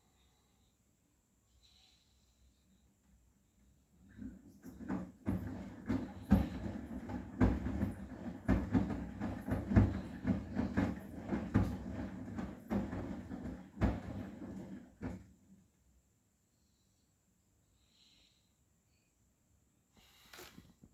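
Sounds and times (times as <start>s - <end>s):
washing machine drum rumbling: 4.1s - 15.3s
load thumping in drum: 4.6s - 15.3s.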